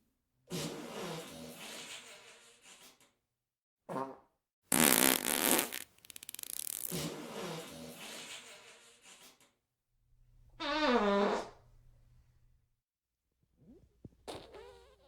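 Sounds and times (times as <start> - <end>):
fart sound effects: 3.9 - 7.7, 10.6 - 11.6, 13.6 - 15.0.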